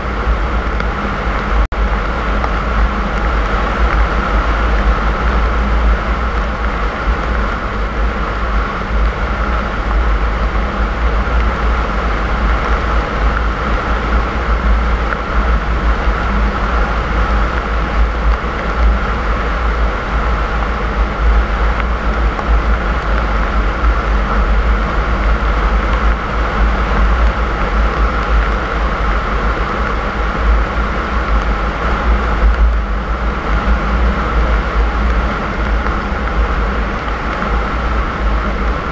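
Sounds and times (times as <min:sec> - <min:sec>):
car engine and tyres rumbling: 0:00.0 - 0:38.9
constant hiss: 0:00.0 - 0:38.9.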